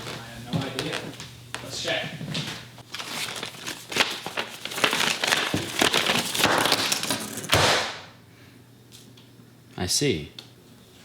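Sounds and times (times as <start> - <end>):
crinkling rustling handling noise: 0.0 - 7.0.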